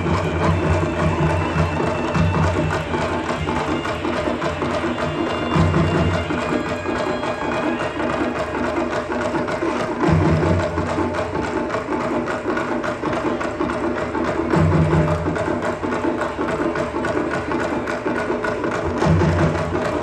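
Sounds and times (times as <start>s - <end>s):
live band music: 0.0s - 10.9s
percussion rhythm: 0.0s - 20.0s.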